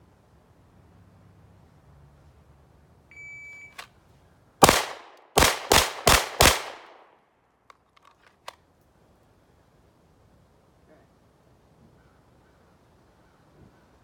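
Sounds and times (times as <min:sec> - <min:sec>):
handgun shots: 0:04.6 - 0:07.1.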